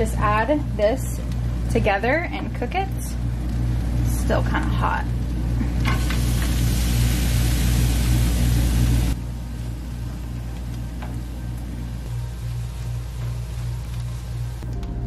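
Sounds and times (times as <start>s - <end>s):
low hum: 0.0s - 15.0s
rice sizzling in oil: 3.1s - 14.6s.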